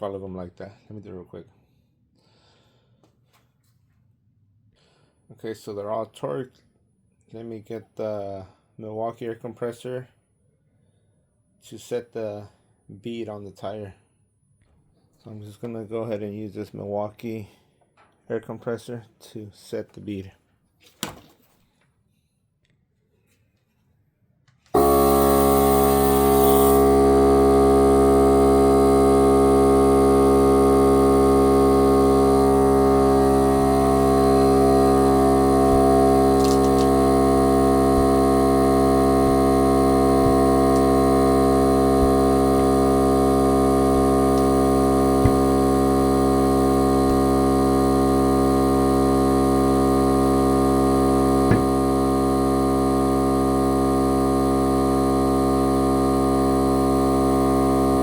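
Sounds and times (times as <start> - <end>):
air compressor humming: 24.7 - 58.0
small clicks: 36.4 - 36.9.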